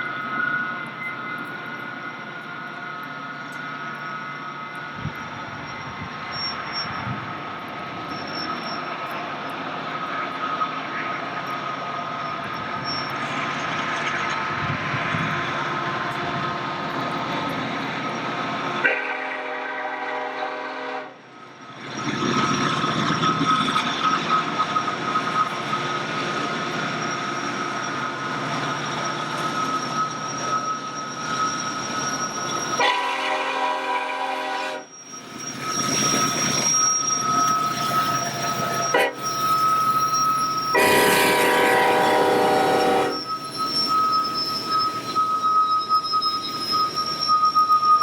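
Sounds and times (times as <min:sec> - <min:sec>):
high-pitched wheel squeal: 0:00.0 - 0:18.8, 0:21.9 - 0:48.0
train running by on rails: 0:00.0 - 0:48.0
diesel locomotive horn blasts: 0:18.8 - 0:21.2, 0:32.8 - 0:34.9, 0:38.9 - 0:39.4, 0:40.7 - 0:43.3.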